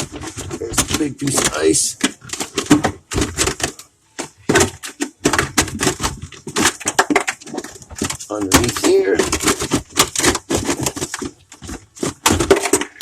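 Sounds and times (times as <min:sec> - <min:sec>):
clicking and knocking on ice: 0:00.0 - 0:13.0.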